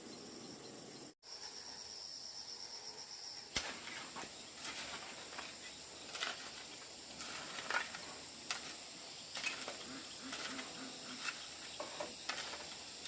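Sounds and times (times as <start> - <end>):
high insect trill: 0.0 - 13.0.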